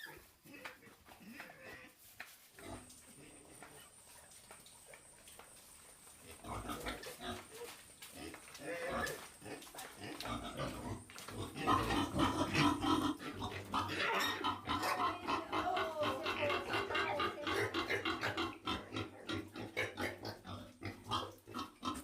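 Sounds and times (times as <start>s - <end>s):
wild boars grunting: 6.2s - 22.0s.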